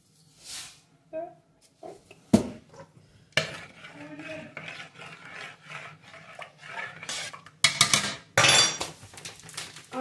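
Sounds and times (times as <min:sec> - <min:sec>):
scraping and rubbing: 0:03.4 - 0:07.5.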